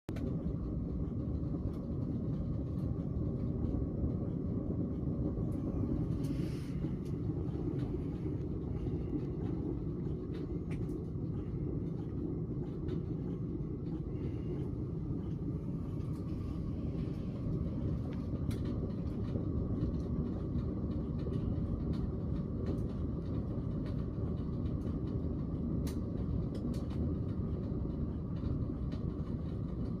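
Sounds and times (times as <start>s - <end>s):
low rumble of stove fire: 0.0s - 30.0s
faint crackles: 0.1s - 30.0s.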